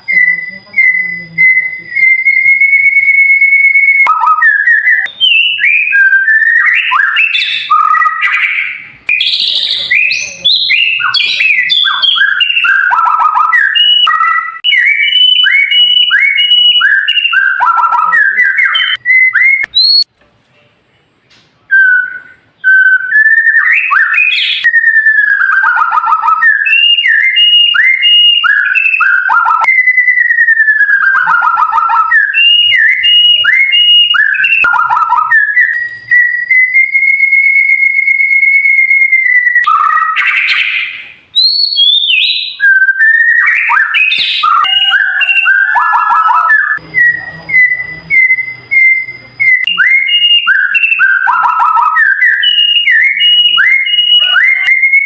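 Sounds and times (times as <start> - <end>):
songbird whistled song: 0.0 - 20.1, 21.7 - 55.0.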